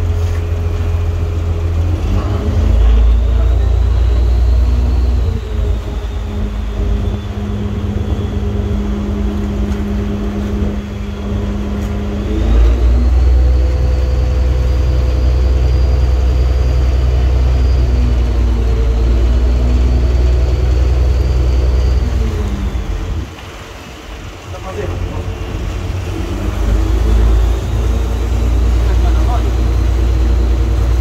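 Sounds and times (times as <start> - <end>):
boat engine running: 0.0 - 31.0.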